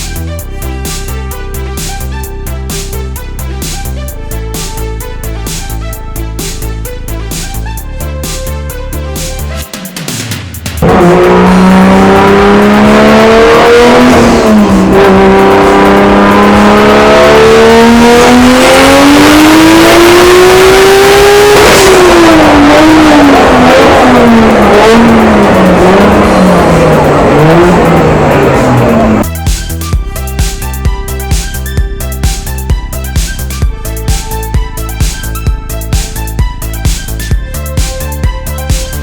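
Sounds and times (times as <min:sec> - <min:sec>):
car engine revving: 0:09.0 - 0:29.4.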